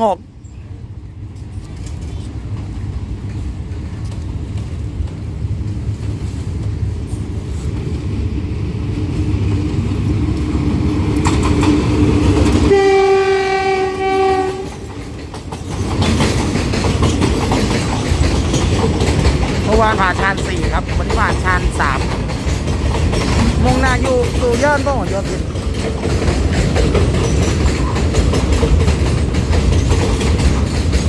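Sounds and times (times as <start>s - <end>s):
diesel locomotive engine rumble: 0.0s - 31.0s
wheels clattering over rail joints: 10.0s - 31.0s
train horn chord: 12.6s - 14.8s.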